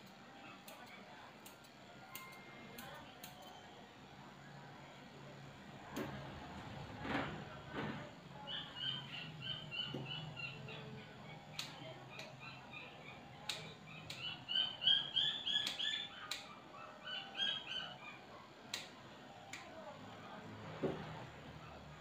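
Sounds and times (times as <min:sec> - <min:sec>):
scissors snipping: 0:00.6 - 0:03.5, 0:15.6 - 0:16.5
small birds chirping: 0:08.4 - 0:18.3.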